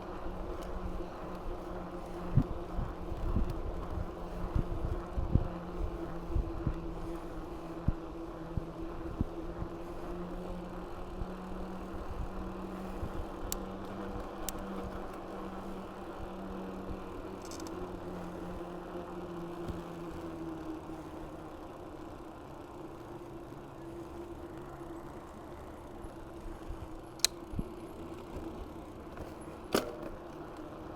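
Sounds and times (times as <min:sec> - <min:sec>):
mountain bike rolling rush: 0:00.0 - 0:30.9
wind: 0:00.0 - 0:30.9.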